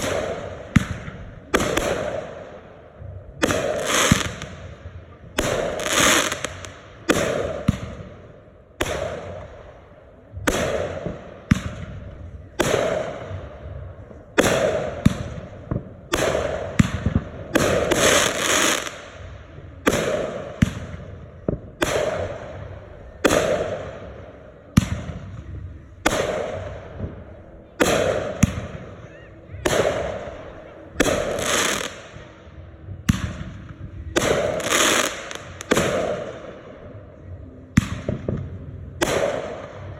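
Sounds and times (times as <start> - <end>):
fireworks bangs: 0.0 - 39.9.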